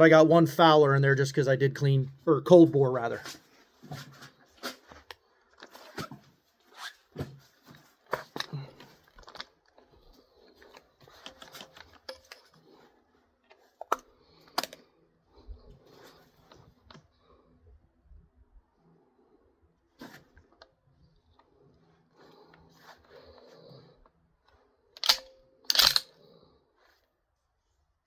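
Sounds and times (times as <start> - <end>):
rifle bolt clicks and rattles: 7.7 - 9.9, 10.5 - 12.8, 13.5 - 14.8, 25.0 - 26.3.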